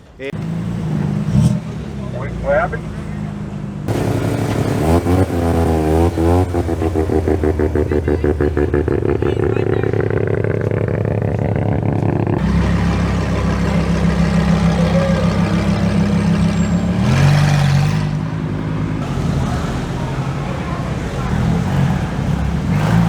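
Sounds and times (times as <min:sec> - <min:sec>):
car engine running: 0:00.4 - 0:23.0.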